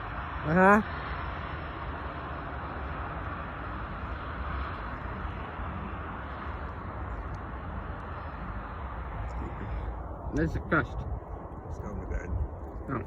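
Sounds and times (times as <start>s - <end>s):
jet airliner engine: 0.0s - 13.0s.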